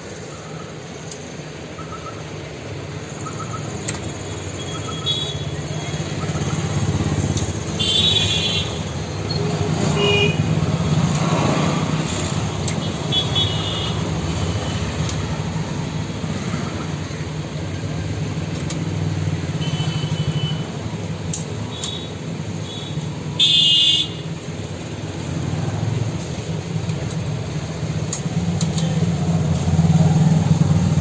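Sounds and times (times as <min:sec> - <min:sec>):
traffic engine rumble: 0:00.0 - 0:31.0
car horn toots: 0:09.9 - 0:10.5, 0:22.7 - 0:24.3.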